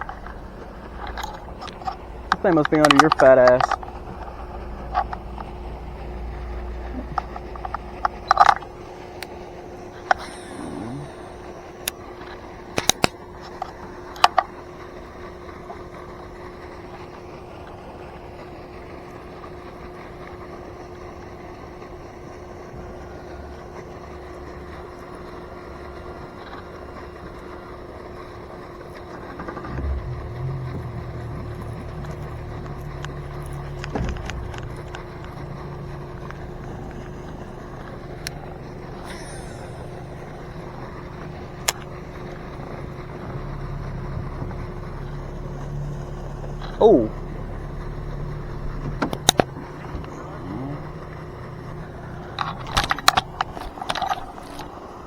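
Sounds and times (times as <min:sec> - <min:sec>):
steady mechanical hum: 0:00.0 - 0:55.0
sharp clicks and knocks: 0:29.4 - 0:43.4, 0:48.6 - 0:50.2.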